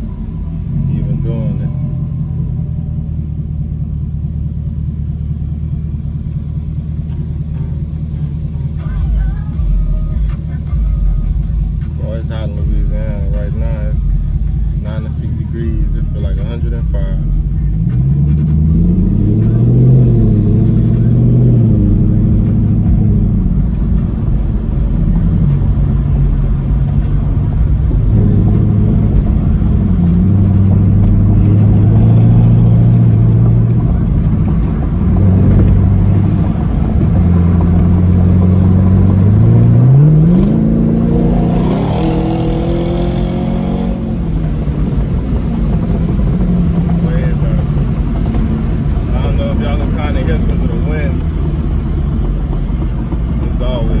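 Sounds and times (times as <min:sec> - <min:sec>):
car engine deep exhaust note: 0:00.0 - 0:54.0
engine revving sharply: 0:14.7 - 0:52.2.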